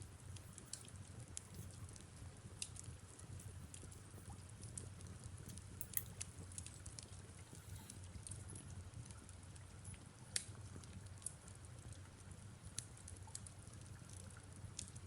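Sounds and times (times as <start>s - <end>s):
fireplace crackling and popping: 0.0s - 11.9s
faint rain patter: 0.0s - 15.0s.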